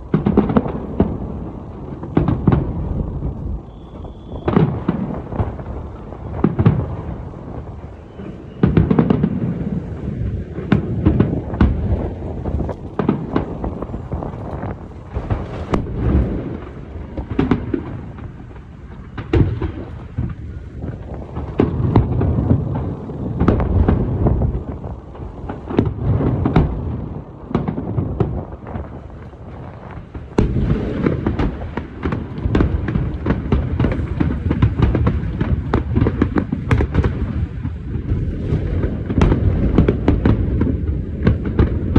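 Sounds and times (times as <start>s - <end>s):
fireworks bursting: 0.0s - 41.9s
low rumble and echo: 9.3s - 25.7s.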